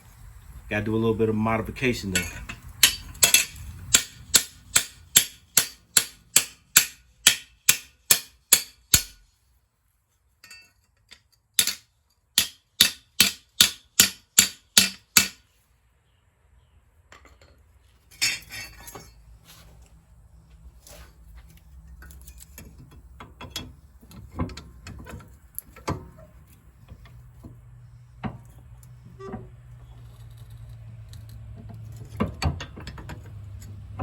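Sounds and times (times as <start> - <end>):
hammer striking steel blade: 2.2 - 9.2, 12.4 - 15.4.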